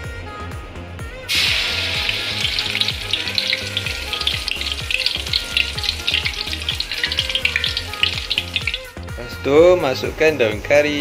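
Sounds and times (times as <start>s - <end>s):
spice paste sizzling in oil: 1.3s - 9.0s.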